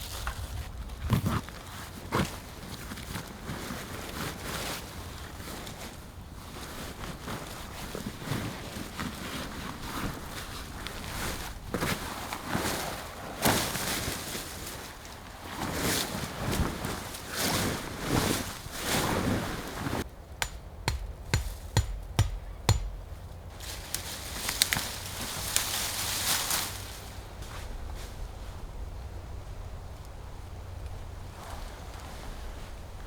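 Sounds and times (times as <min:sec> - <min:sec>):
rustling and crunching handling: 0:00.0 - 0:28.6
sharp knocks: 0:20.4 - 0:23.2.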